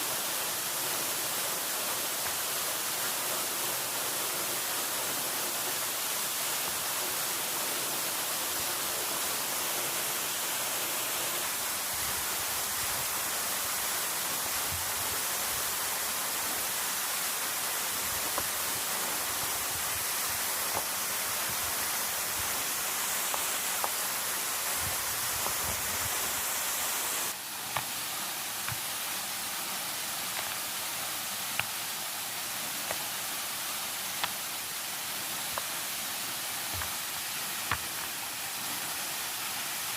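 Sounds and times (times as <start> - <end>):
rushing water hiss: 0.0 - 39.9.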